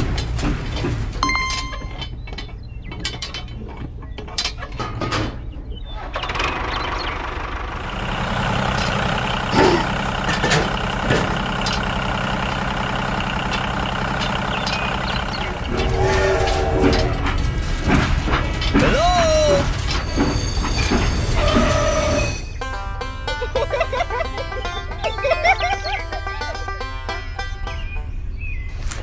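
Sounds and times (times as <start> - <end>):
machine running with low hum: 13.5 - 18.8, 19.6 - 22.5.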